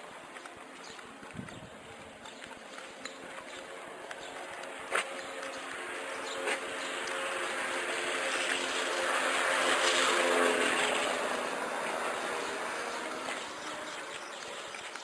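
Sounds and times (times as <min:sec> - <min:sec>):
vehicle engine passing by: 0:03.6 - 0:14.4.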